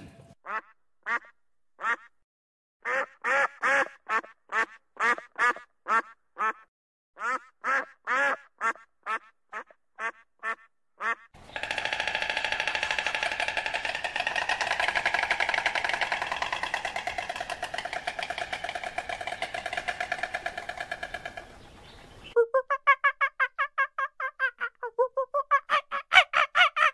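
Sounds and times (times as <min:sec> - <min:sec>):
rapid rattling bird call: 0:11.4 - 0:22.4.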